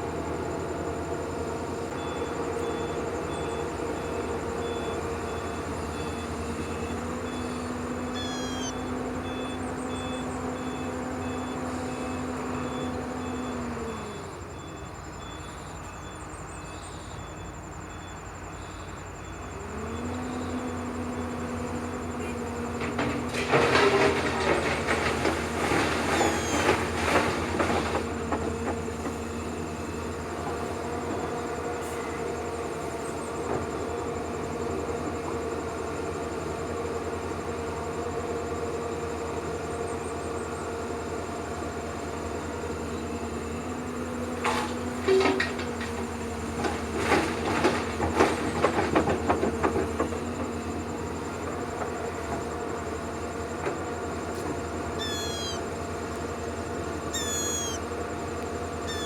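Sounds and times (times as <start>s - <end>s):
motor hum: 1.9s - 16.1s, 50.3s - 59.0s
rough noisy motor sound: 5.8s - 14.2s, 19.6s - 31.4s, 43.4s - 59.0s.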